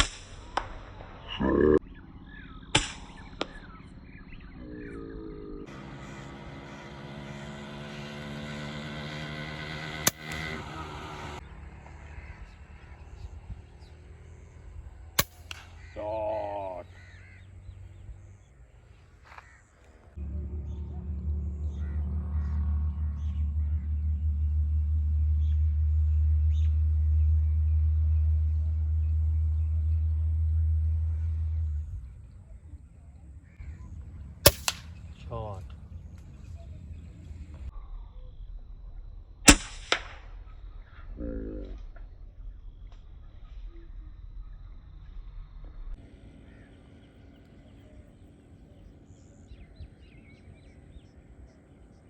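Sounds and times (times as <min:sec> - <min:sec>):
low rumble: 0:00.0 - 0:06.3, 0:20.0 - 0:52.0
faint echoing crack: 0:00.0 - 0:14.1, 0:14.8 - 0:17.4, 0:21.0 - 0:37.7, 0:39.4 - 0:42.2
sharp click: 0:02.8 - 0:03.6, 0:10.0 - 0:10.5, 0:15.2 - 0:15.8
crow cawing: 0:05.8 - 0:06.9, 0:11.9 - 0:13.3, 0:15.7 - 0:18.0, 0:19.2 - 0:20.2, 0:46.4 - 0:46.8
gunshots: 0:15.2 - 0:15.8, 0:34.4 - 0:35.0, 0:39.5 - 0:40.2.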